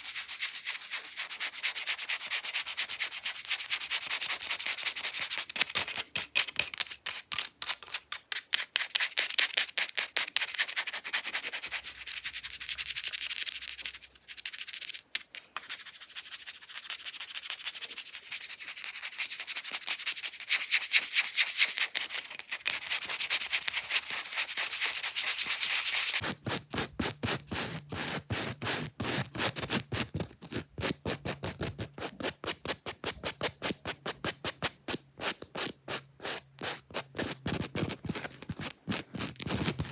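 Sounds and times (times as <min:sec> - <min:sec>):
fake nails scratching surface: 0:20.2 - 0:39.9.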